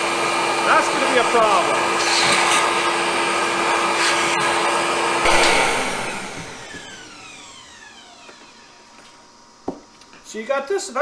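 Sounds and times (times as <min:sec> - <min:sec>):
miter saw motor running: 0:05.2 - 0:08.5
saw blade spinning down whine: 0:05.2 - 0:08.6.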